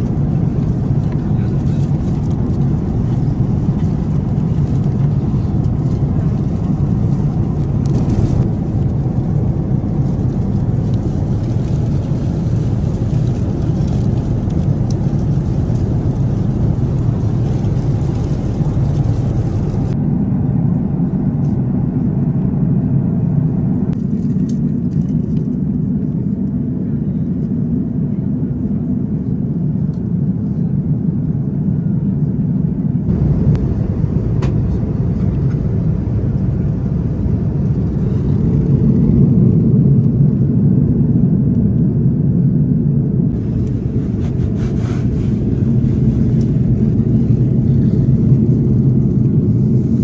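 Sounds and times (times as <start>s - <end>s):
airliner cabin rumble: 0.0s - 50.0s.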